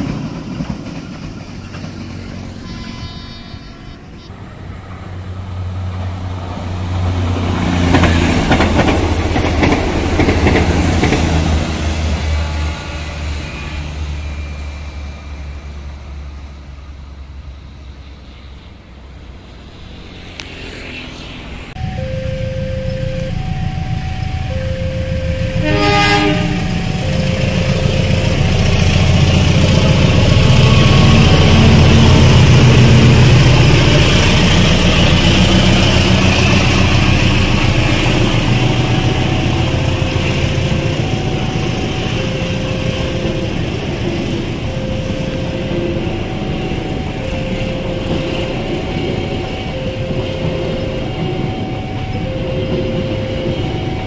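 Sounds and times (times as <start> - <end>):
diesel locomotive rumbling past: 0.0 - 54.0
train horn blast: 2.4 - 4.7, 24.8 - 28.8
level crossing alarm two tones: 21.8 - 29.1, 38.6 - 43.8, 44.5 - 54.0.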